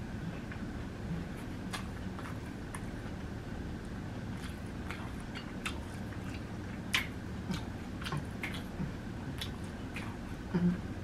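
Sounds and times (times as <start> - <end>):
low background hum: 0.0 - 11.0
crunchy food chewing: 0.1 - 10.6.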